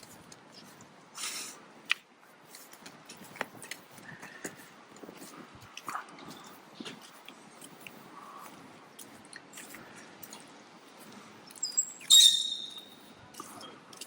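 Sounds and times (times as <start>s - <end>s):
high-pitched squeak: 11.6s - 13.0s.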